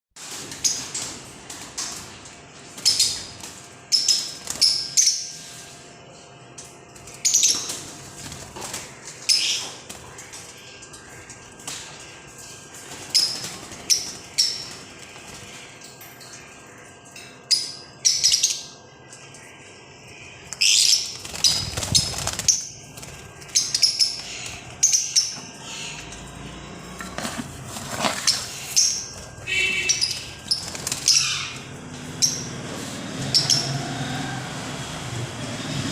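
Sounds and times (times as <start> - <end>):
parrot chirping: 28.5 - 32.6.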